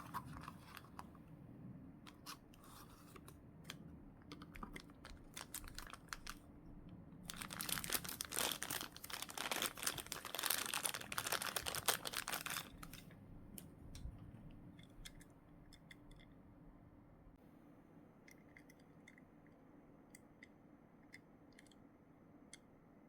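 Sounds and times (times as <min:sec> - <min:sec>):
plastic packaging crinkling: 0:04.3 - 0:06.4, 0:07.3 - 0:13.1.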